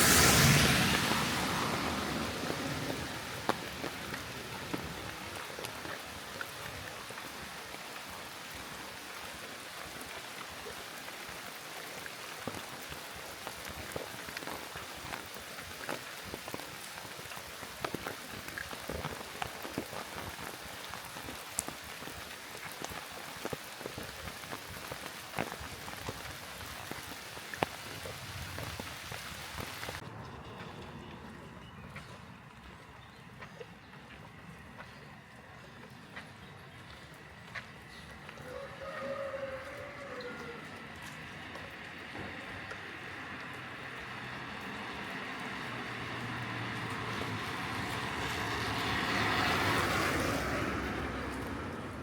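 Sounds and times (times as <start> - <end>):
rain hissing: 0.0 - 30.0
raindrops tapping: 0.0 - 30.0.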